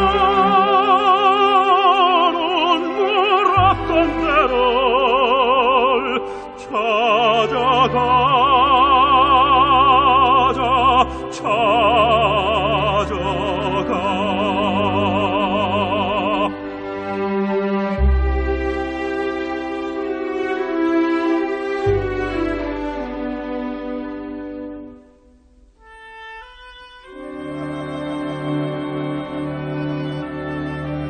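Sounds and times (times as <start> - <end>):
operatic singing: 0.0 - 17.2
orchestral accompaniment: 0.0 - 31.0.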